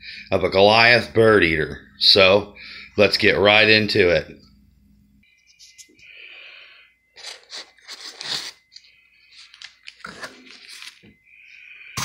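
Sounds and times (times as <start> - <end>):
packing crunching and crinkling: 7.2 - 11.1.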